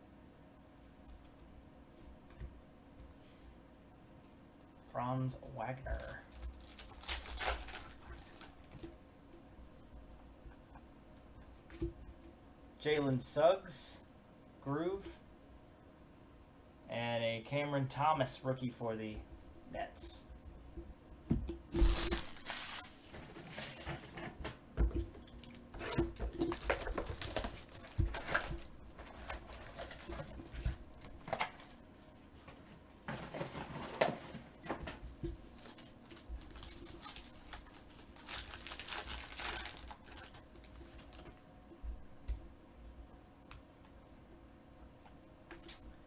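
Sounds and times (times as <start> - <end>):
wrappers tearing and crinkling: 5.9 - 8.9, 21.7 - 24.2, 25.3 - 31.9, 35.4 - 41.4.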